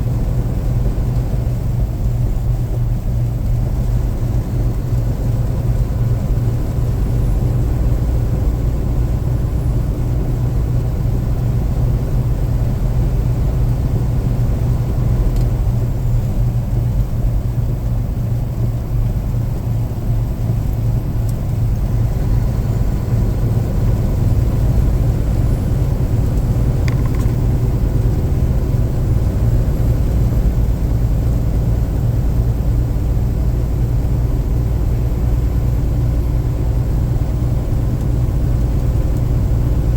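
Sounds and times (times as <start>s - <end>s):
car engine running: 0.0s - 39.9s
tyre and road noise: 19.0s - 33.0s.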